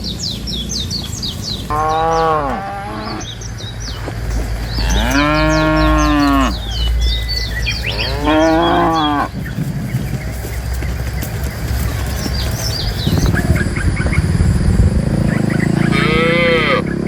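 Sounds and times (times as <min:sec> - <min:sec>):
small birds chirping: 0:00.0 - 0:17.0
cow mooing: 0:01.7 - 0:03.4, 0:04.7 - 0:06.9, 0:07.8 - 0:09.4, 0:15.8 - 0:17.0.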